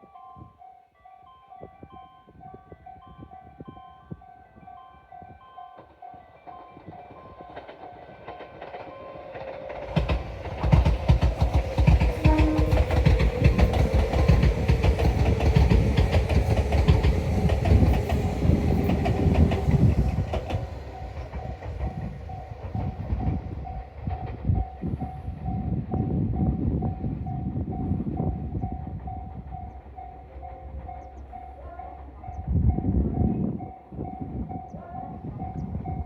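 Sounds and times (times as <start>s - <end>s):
electric train passing: 2.8s - 36.0s
wheels clicking over rail joints: 5.7s - 25.5s.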